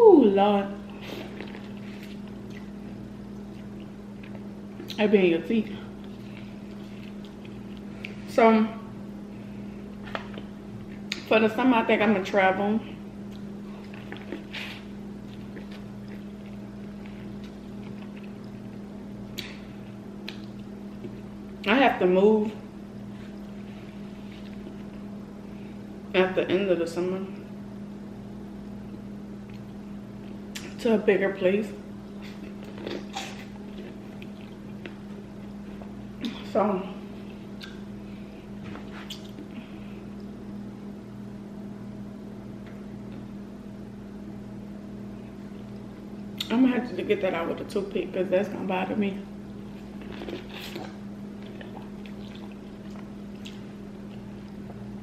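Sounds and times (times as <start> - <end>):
steady low hum: 0.0 - 55.0
mouth clicks and smacks eating: 6.0 - 8.2, 20.2 - 21.3, 37.2 - 37.9, 38.7 - 39.6, 49.8 - 54.9
mouth noises of eating: 13.3 - 21.3, 32.1 - 40.4, 49.6 - 55.0.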